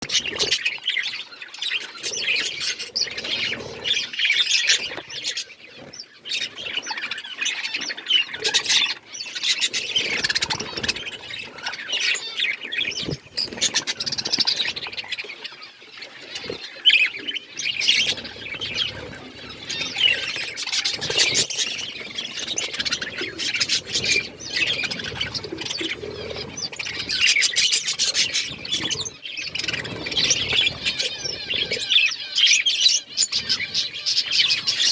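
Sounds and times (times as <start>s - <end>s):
bird squawks: 0.0s - 34.9s
budgerigars chattering and chirping: 0.0s - 34.9s.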